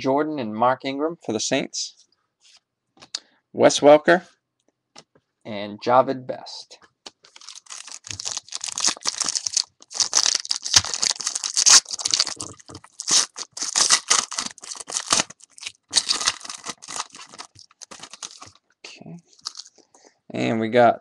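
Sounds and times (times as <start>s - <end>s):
foil wrapper tearing and crinkling: 7.2s - 18.6s, 19.3s - 19.8s.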